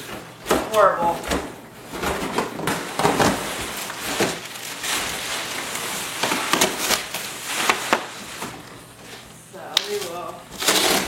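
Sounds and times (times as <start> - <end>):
packaging rustling and scraping: 1.9 - 9.3, 9.9 - 11.0.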